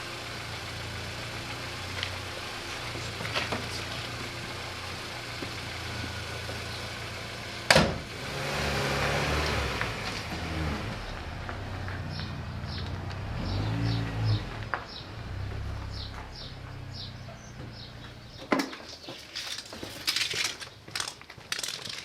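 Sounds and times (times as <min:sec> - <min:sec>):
diesel engine idling: 0:00.0 - 0:08.4, 0:09.2 - 0:18.4.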